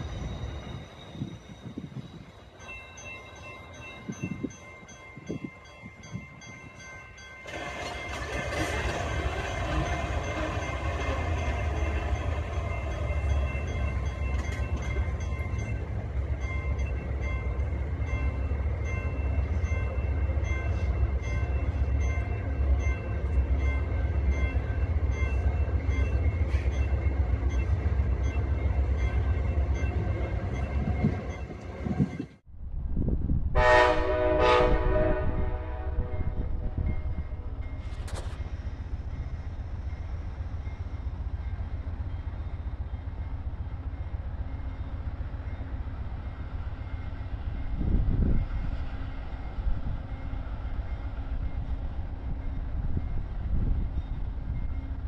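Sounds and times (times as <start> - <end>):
diesel locomotive rumbling: 0.0 - 55.0
locomotive air horn: 33.6 - 36.8.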